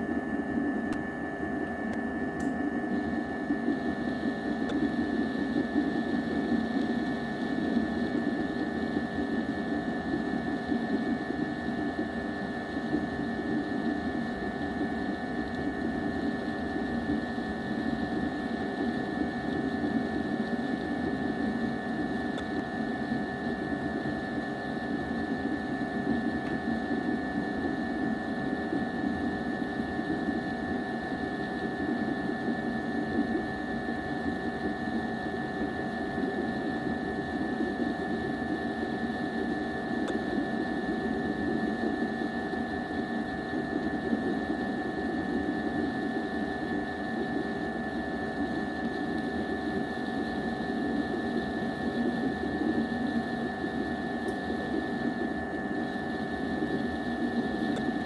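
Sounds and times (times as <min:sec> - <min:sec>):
machine hum with high whine: 0:00.0 - 0:58.0.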